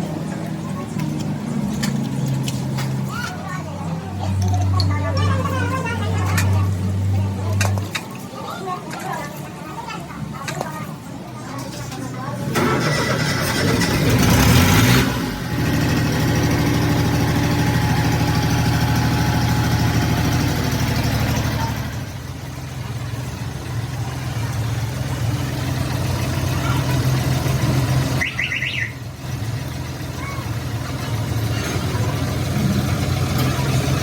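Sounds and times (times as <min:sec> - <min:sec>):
engine idling: 0:12.4 - 0:34.0.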